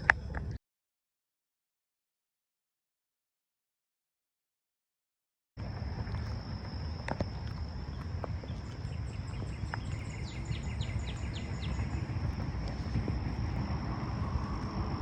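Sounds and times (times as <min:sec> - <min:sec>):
low rumble: 0:05.6 - 0:15.0.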